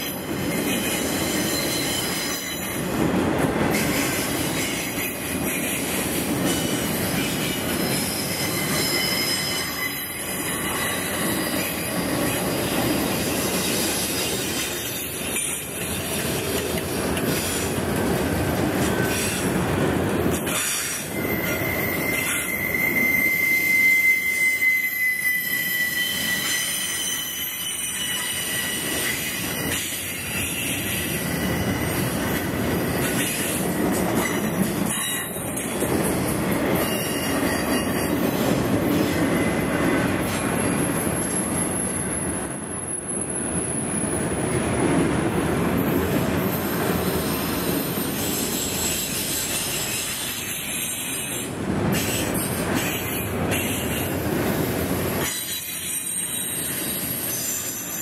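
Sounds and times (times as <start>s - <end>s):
train wheels rumbling on rails: 0.0s - 58.0s
high-pitched wheel squeal: 0.7s - 2.8s, 7.9s - 12.7s, 21.1s - 29.8s.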